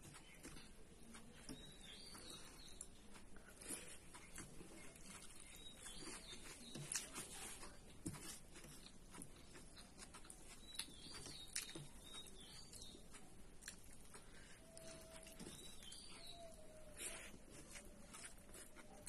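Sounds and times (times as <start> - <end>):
faint clicks and taps: 0.0 - 16.9
high bird chirps: 14.7 - 17.3.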